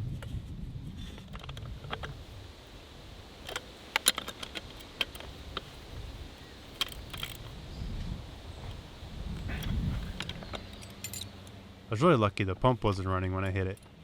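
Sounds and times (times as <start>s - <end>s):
metallic clinks of tools: 10.6s - 11.5s.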